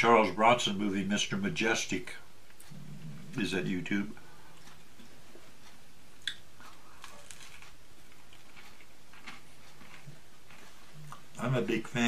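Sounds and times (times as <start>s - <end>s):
man chewing food: 2.4s - 11.4s.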